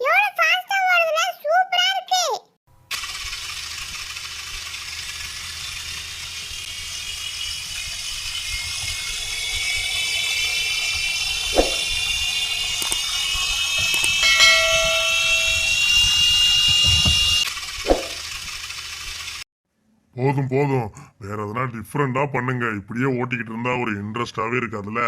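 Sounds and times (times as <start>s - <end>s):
wheels rattling on plastic track: 2.9s - 11.5s
toy car motor whine: 2.9s - 19.4s.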